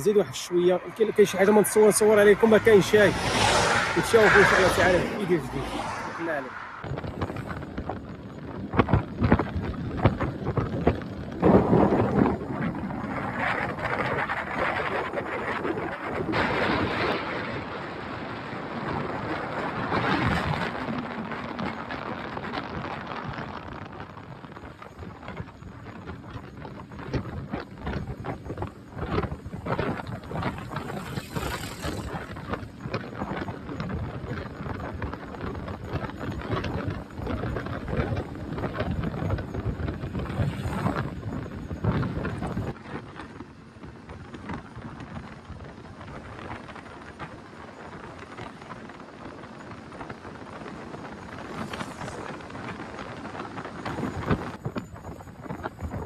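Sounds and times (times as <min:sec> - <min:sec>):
vehicle moving on road: 0:00.0 - 0:56.0
wind buffeting microphone: 0:00.0 - 0:56.0.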